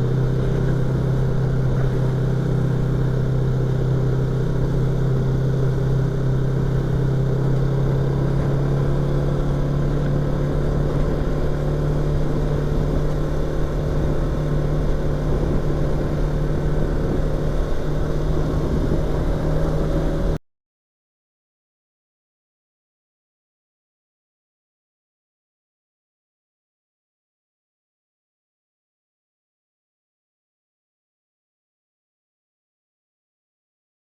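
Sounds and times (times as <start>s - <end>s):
motorcycle engine running: 0.0s - 20.4s.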